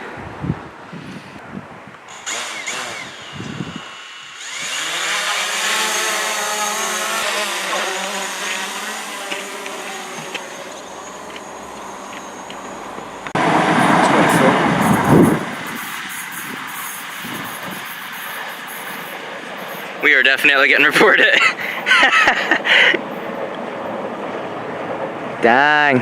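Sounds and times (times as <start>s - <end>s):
drone motors buzzing whine: 2.1s - 20.6s.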